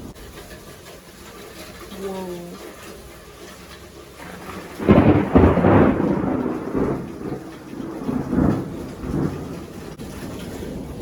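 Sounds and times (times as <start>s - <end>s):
thunder rolling: 4.2s - 11.0s.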